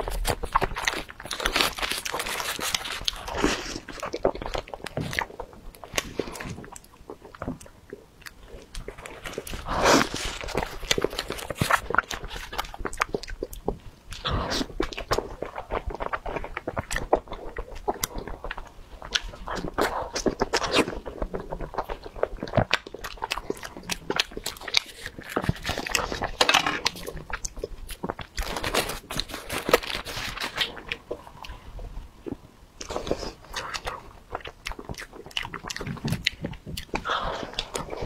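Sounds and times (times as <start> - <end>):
foil crinkling: 0.0 - 4.3, 9.0 - 12.8, 28.4 - 30.9
chewing and mouth smacks: 0.0 - 38.0.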